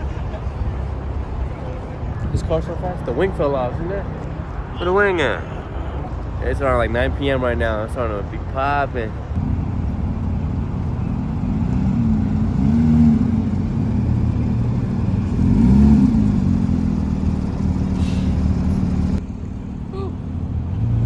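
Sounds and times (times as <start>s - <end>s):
car engine revving: 9.4s - 19.2s.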